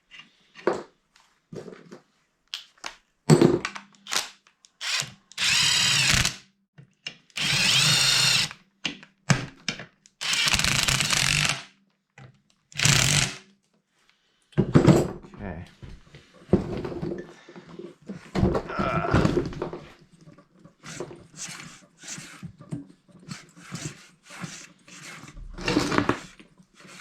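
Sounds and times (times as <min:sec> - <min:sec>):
power drill whining: 0:04.8 - 0:06.4, 0:07.4 - 0:08.6, 0:10.2 - 0:11.7, 0:12.8 - 0:13.4.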